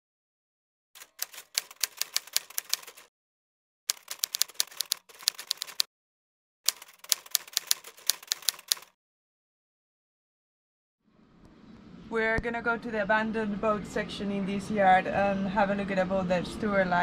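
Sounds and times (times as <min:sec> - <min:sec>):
typewriter keys clacking: 0:01.0 - 0:03.1, 0:03.9 - 0:05.9, 0:06.7 - 0:08.9.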